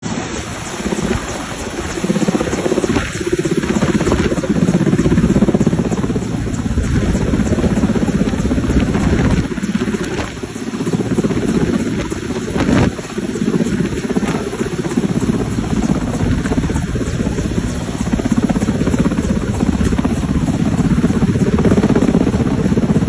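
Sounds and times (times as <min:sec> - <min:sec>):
helicopter rotor blades chopping: 0:00.0 - 0:23.0.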